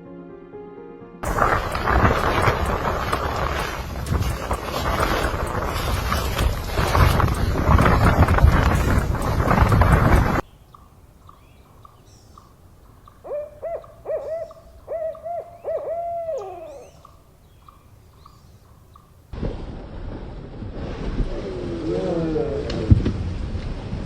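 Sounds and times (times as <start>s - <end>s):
rushing noise: 1.2s - 10.4s
owl hooting: 13.0s - 18.3s.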